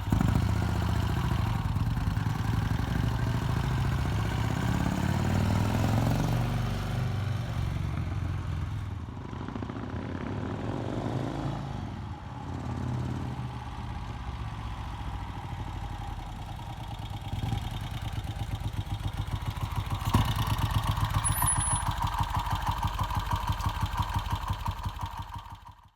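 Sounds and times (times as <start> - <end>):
motorcycle engine revving and idling: 0.0 - 25.9.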